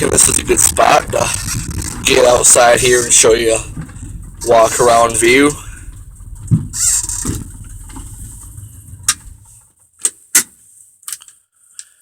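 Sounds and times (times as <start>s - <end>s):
truck engine running: 0.0s - 9.7s.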